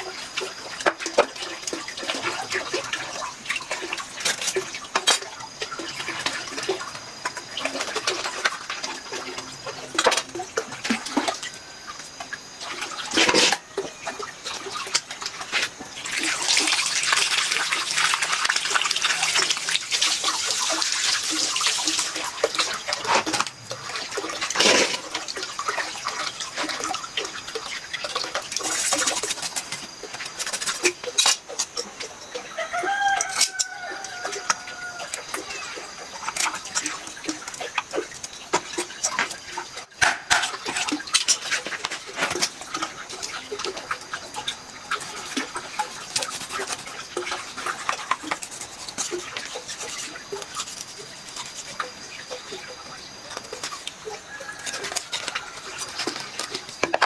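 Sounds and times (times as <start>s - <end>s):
water splashing and sloshing: 0.0s - 57.0s.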